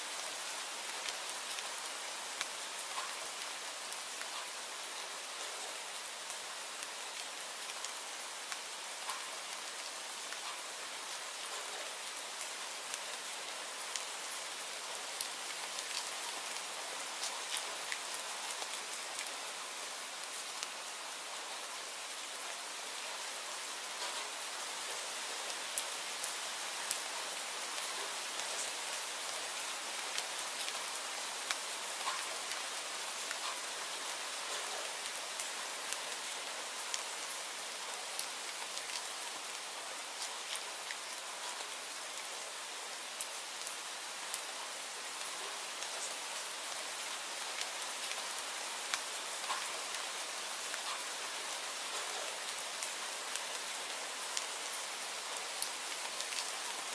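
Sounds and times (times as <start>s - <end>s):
steady rain hiss: 0.0s - 56.9s
raindrops ticking: 48.9s - 50.0s.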